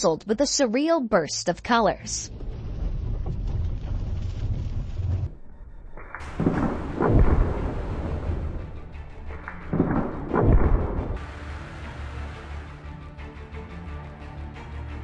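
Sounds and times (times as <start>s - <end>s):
deep rumbling booms: 2.3s - 11.2s
background music: 5.4s - 15.0s.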